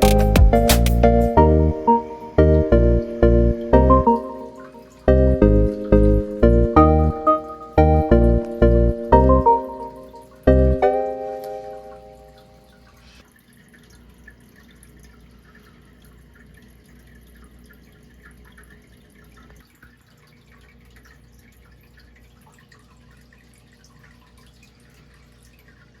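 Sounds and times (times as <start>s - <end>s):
water dripping and trickling: 0.0s - 26.0s.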